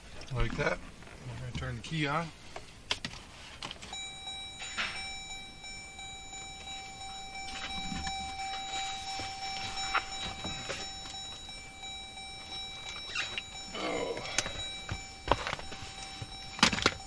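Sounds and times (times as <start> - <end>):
continuous high-pitched beep: 3.9 - 17.0.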